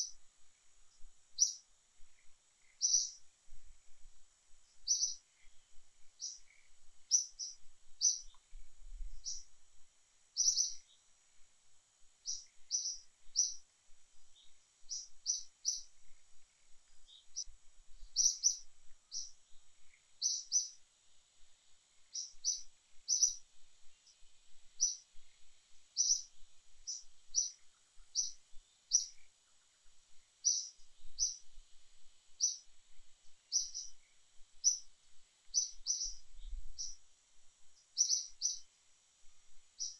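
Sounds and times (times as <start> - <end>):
small bird chirping: 0.0 - 9.6, 10.3 - 11.5, 12.1 - 20.9, 21.9 - 38.8, 39.5 - 39.9
faint high-pitched hiss: 0.0 - 39.9.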